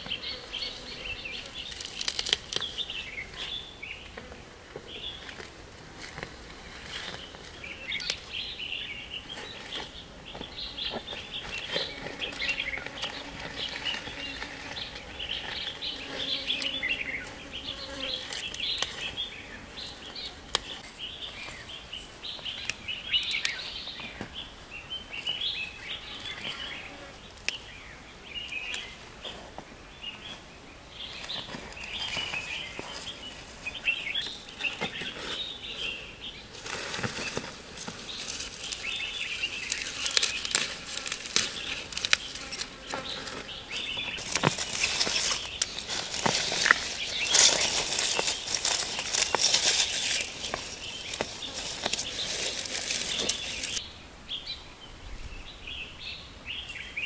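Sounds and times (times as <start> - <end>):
birds chirping: 0.0 - 5.5, 6.2 - 57.0
clicks and rustles: 1.6 - 2.8, 36.6 - 53.8.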